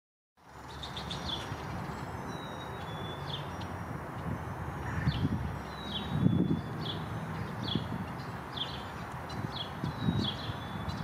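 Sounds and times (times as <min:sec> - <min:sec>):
songbirds chirping: 0:00.4 - 0:11.0.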